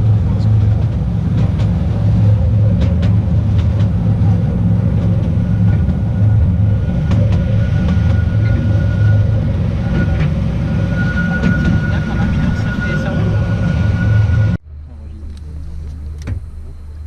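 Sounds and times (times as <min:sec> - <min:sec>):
wheels clicking on rails: 0:00.0 - 0:09.2
train rumbling on track: 0:00.0 - 0:17.0.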